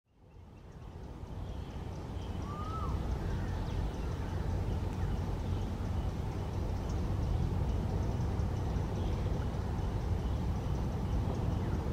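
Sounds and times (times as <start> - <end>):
faint bird calls: 0.4 - 11.9
rising and falling bird call: 1.6 - 5.6.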